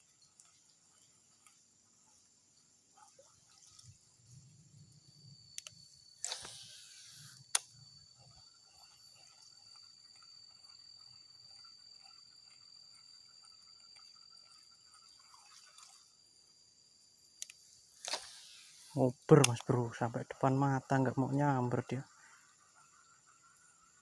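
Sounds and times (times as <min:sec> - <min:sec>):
insects chirring: 0:00.0 - 0:24.0
sharp click: 0:05.6 - 0:06.7
brief rustle: 0:06.2 - 0:07.4.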